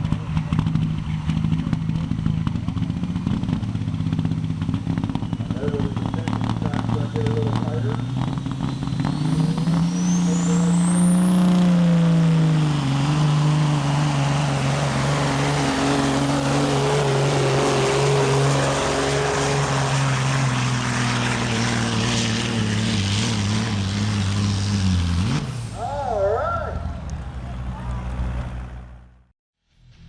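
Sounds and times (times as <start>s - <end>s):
diesel truck engine under load: 0.0s - 29.3s
high turbo whine: 0.0s - 30.0s.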